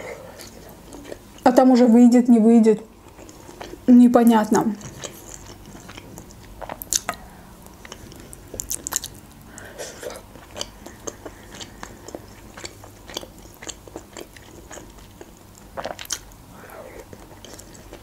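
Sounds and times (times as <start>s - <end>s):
person chewing soft food: 0.0s - 1.4s, 3.0s - 3.9s, 4.8s - 18.0s.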